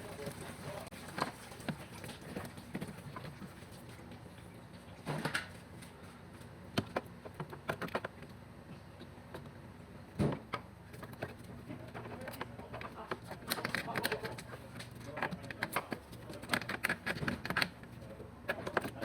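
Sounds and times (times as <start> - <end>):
tools clicking and knocking: 15.1 - 17.8.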